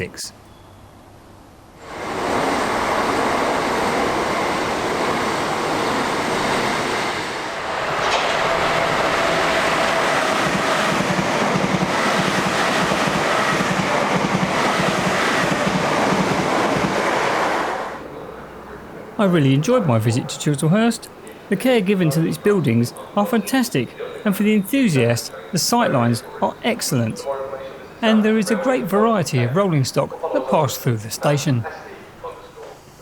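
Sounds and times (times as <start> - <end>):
train wheels rushing on rails: 1.8 - 18.0.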